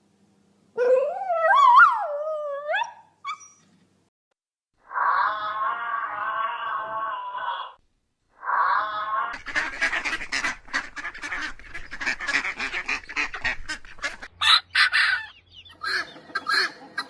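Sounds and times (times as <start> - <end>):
waterfowl honking: 9.4 - 17.0.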